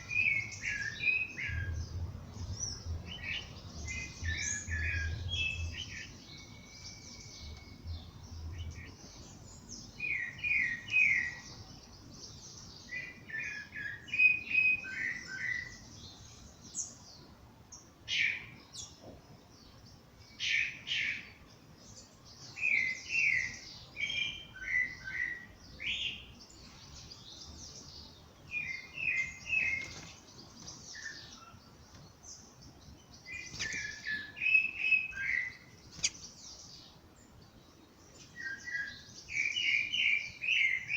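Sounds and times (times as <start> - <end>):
bird singing falling notes: 0.0 - 12.0, 27.9 - 36.9
birds twittering: 0.0 - 40.9.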